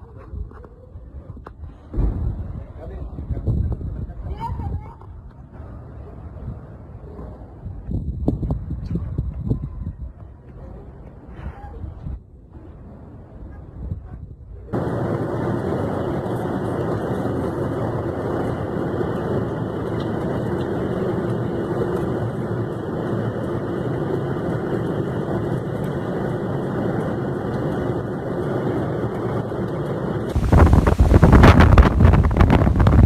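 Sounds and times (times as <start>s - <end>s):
gusty wind buffeting microphone: 0.0s - 33.0s
steady rushing noise: 14.7s - 33.0s.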